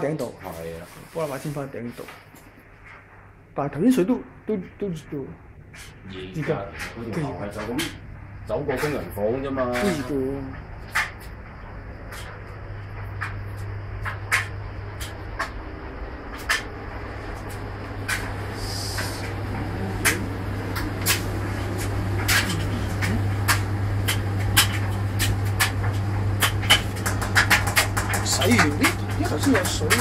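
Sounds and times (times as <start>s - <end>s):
washing machine humming: 0.0s - 30.0s
washing machine clicks and knocks: 16.3s - 30.0s.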